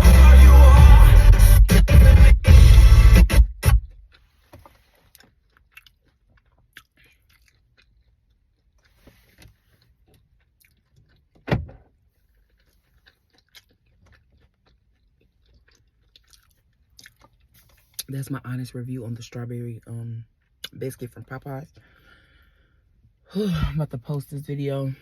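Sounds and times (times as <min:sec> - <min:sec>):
person chewing a biscuit: 0:03.8 - 0:18.1, 0:20.3 - 0:20.8
thump: 0:11.5 - 0:11.9
mouth clicks and crackles: 0:12.4 - 0:18.2.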